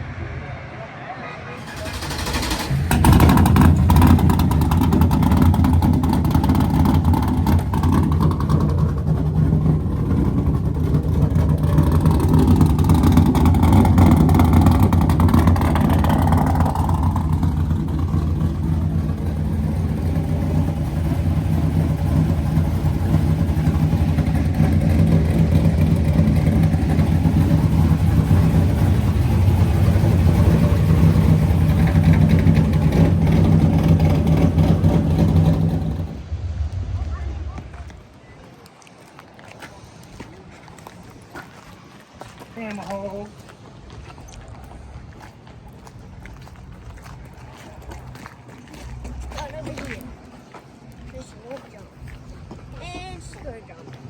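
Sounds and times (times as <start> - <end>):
car engine running: 1.6 - 38.2.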